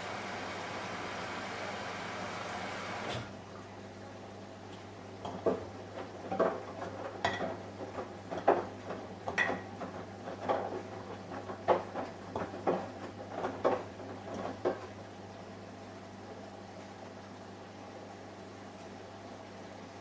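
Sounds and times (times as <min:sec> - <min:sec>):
washing machine hum: 0:00.0 - 0:20.0.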